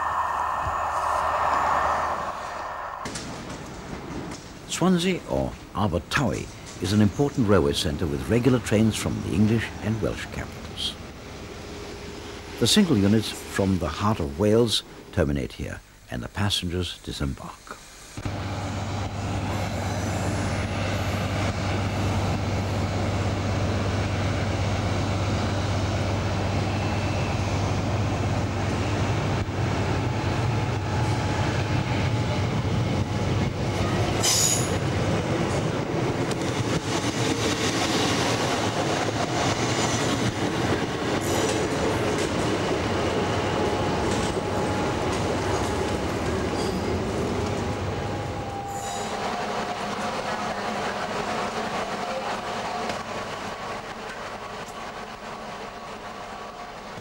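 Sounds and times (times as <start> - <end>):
rail noise: 0.0 - 15.1, 17.8 - 57.0
train engine hum: 0.0 - 15.2, 17.4 - 57.0
wheel squeal: 48.5 - 49.2.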